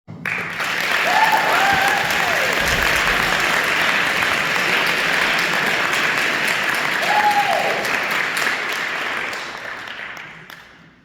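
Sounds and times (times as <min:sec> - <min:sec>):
audience applauding: 0:00.1 - 0:11.0
person whooping: 0:07.0 - 0:07.8.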